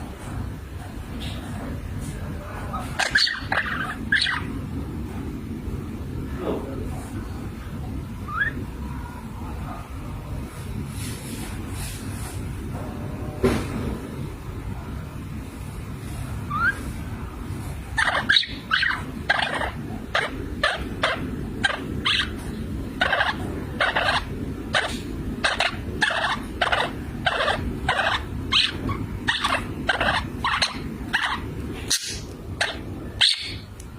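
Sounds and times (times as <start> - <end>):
birds calling: 0.0 - 6.3, 16.4 - 33.9
steady low rumble: 0.0 - 33.9.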